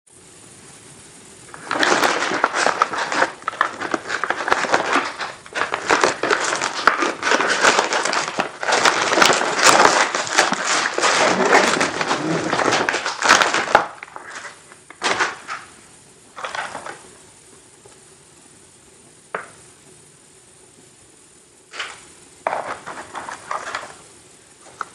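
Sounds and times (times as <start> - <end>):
plastic packaging crinkling: 1.5 - 17.1, 21.7 - 24.9.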